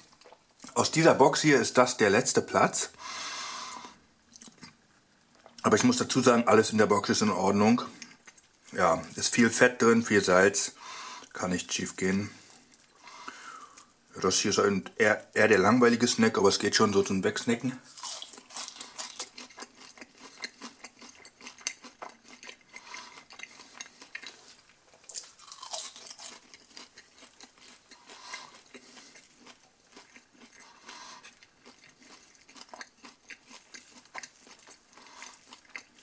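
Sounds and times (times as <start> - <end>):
person chewing crunchy food: 0.0 - 0.8, 7.9 - 9.2, 17.8 - 36.0.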